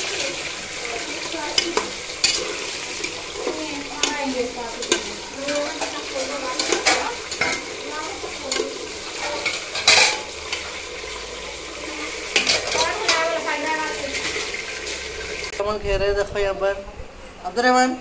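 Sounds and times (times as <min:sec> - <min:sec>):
potatoes sizzling in oil: 0:00.0 - 0:15.6
metal spatula scraping a pot: 0:01.5 - 0:10.7, 0:12.3 - 0:13.3.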